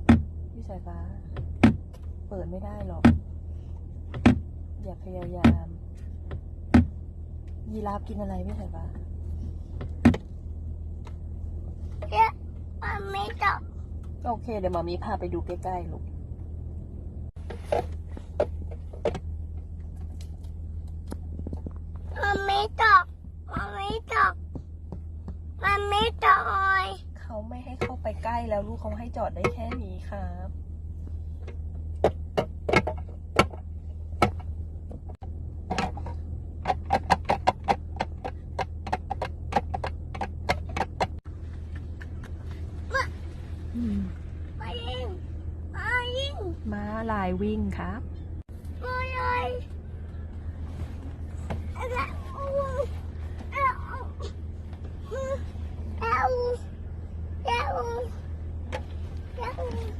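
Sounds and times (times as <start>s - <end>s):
clicks and knocks inside car: 0.0s - 15.8s, 17.3s - 30.2s, 31.0s - 43.1s
car cabin drone: 0.0s - 59.9s
steady low hum: 0.0s - 59.9s.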